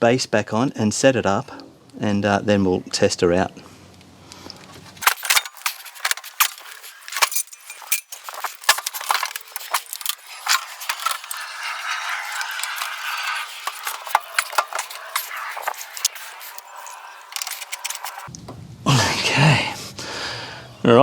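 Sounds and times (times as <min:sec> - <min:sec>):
scraping or rustling: 0:04.6 - 0:18.3
metal tools clinking and knocking: 0:05.0 - 0:18.3.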